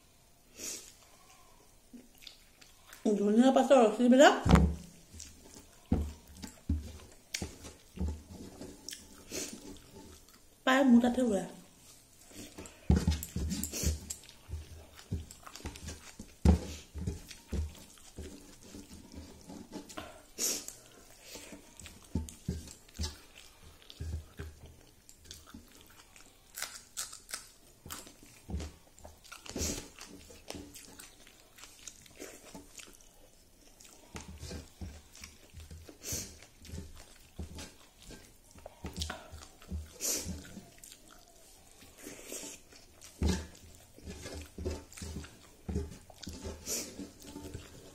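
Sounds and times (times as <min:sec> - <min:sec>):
person chewing and lip smacking: 0:01.9 - 0:03.1, 0:04.9 - 0:10.5, 0:11.8 - 0:47.9
sharp mouth clicks and crunches: 0:02.0 - 0:03.1, 0:25.0 - 0:33.1.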